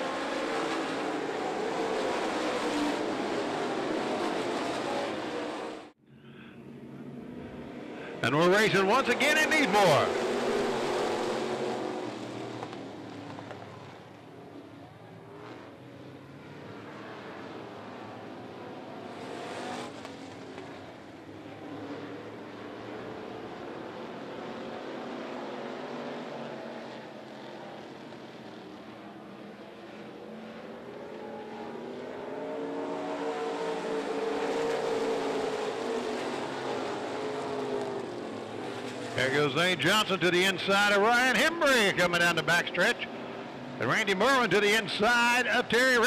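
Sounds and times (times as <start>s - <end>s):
race car engines: 0.0s - 46.0s.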